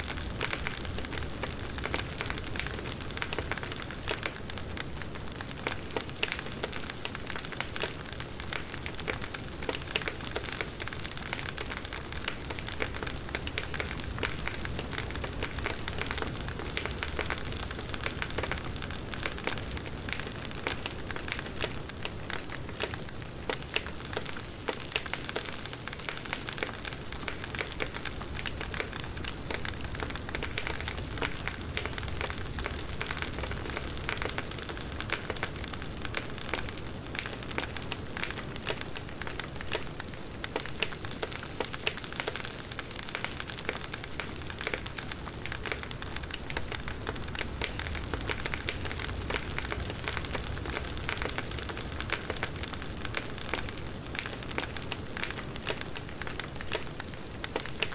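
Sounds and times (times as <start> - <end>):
bonfire crackling and hissing: 0.0 - 57.9.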